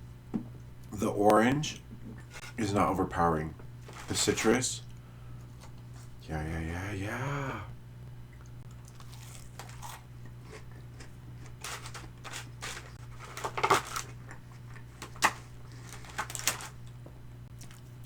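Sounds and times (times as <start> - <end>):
low steady hum: 0.0 - 18.0
crispy food crunching: 8.4 - 18.0.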